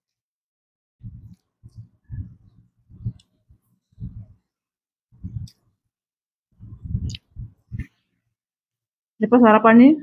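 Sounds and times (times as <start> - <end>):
faint wet mouth clicks: 5.4 - 5.7, 7.0 - 7.3.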